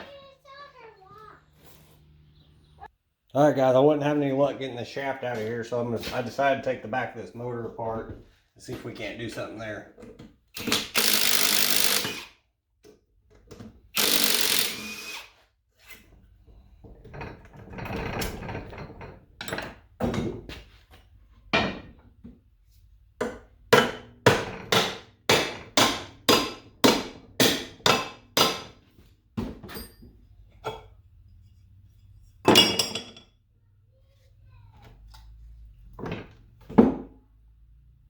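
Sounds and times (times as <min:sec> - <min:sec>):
power drill running: 0:10.9 - 0:12.4, 0:13.9 - 0:15.4
hammer strikes: 0:23.2 - 0:28.8.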